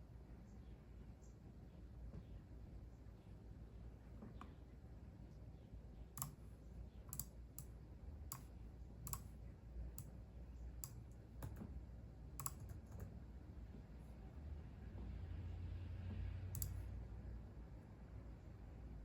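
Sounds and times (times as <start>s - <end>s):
faint low hum: 0.0s - 19.0s
keyboard keystrokes: 6.2s - 6.4s, 9.1s - 9.3s, 10.8s - 11.7s, 12.4s - 13.1s, 16.6s - 16.8s.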